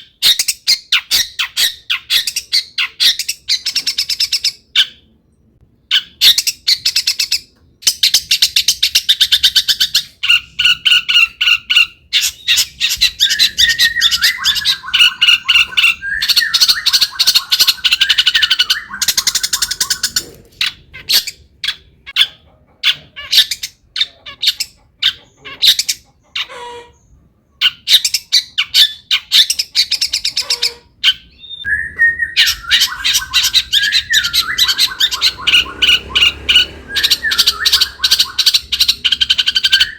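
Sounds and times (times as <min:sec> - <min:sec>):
shrike singing: 0:10.4 - 0:21.5, 0:31.2 - 0:39.9.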